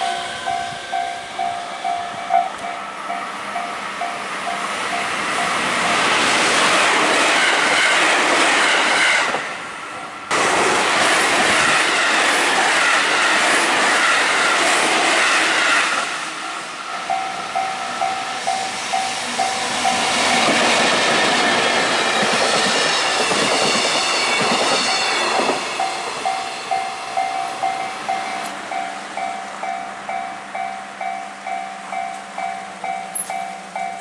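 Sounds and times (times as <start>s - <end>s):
level-crossing alarm ringing: 0.0s - 6.1s, 16.4s - 34.0s
freight train passing: 0.0s - 34.0s
train wheel clatter: 17.1s - 28.6s.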